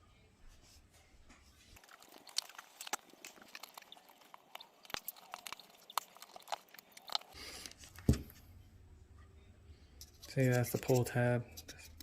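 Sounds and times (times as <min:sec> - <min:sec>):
adhesive clicking and crackling: 0:01.8 - 0:07.8.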